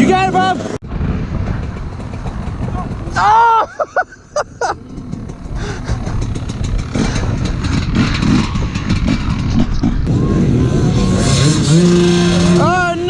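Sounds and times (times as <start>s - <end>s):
dirt bike engine revving: 4.0s - 13.0s.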